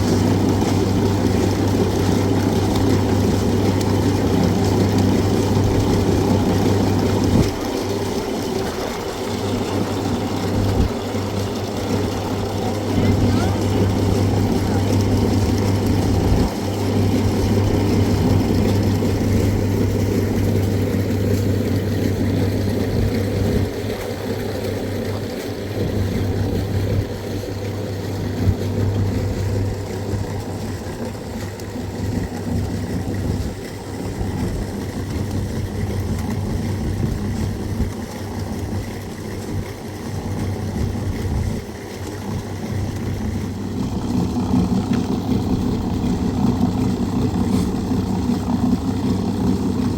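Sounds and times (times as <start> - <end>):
motor humming: 0.0 - 49.9.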